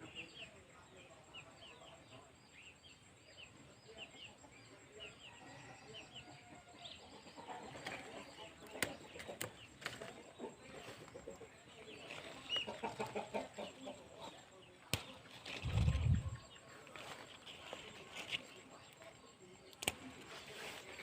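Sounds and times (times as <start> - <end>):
sharp clicks: 19.7 - 20.2.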